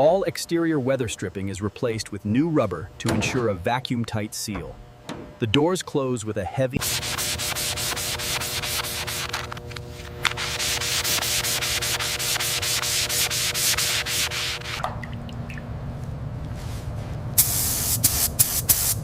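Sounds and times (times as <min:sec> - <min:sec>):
steady hum: 0:00.0 - 0:19.0
rapid rhythmic rubbing strokes: 0:06.8 - 0:14.8.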